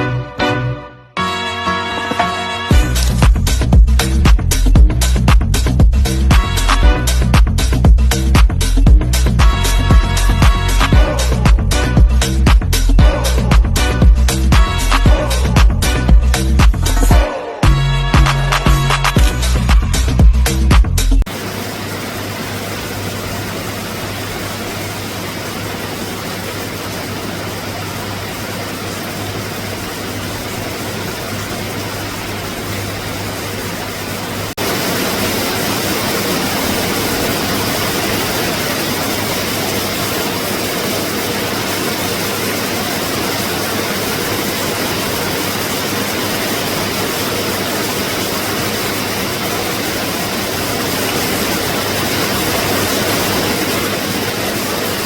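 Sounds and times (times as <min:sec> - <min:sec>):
rain falling on the sea: 0:02.7 - 0:11.6, 0:21.3 - 0:55.0
low steady hum: 0:02.7 - 0:54.9.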